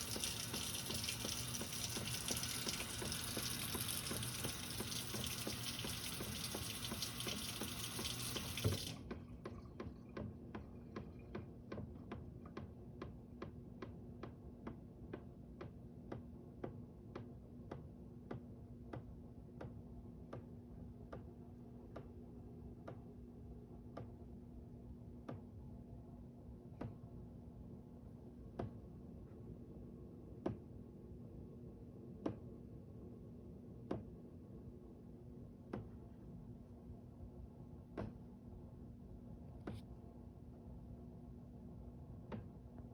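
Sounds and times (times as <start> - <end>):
water rushing through plumbing: 0.0 - 11.8.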